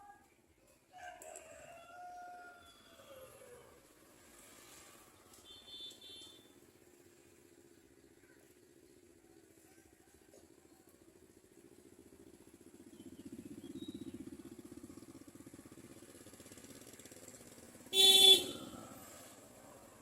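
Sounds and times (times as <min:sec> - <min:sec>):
vehicle engine passing by: 0:03.3 - 0:05.4, 0:11.6 - 0:20.0.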